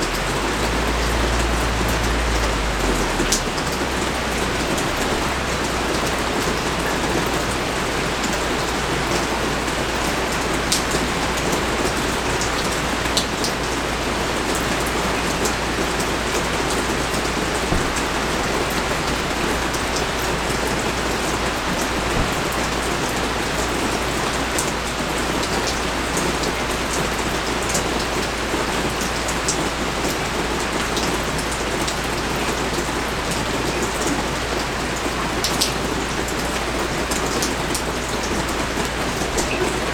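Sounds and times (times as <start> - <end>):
raindrop ticks close by: 0.0 - 7.5
pouring rain: 0.0 - 39.9.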